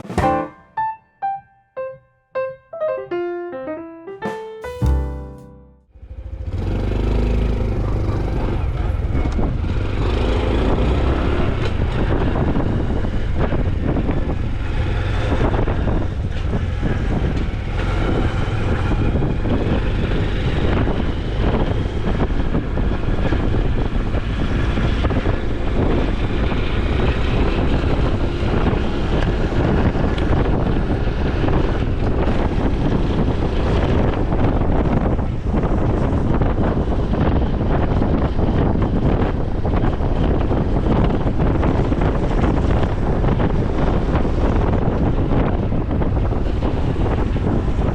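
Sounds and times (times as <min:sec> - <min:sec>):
motorcycle engine running: 0:06.0 - 0:27.6
wind and road noise: 0:06.0 - 0:47.9.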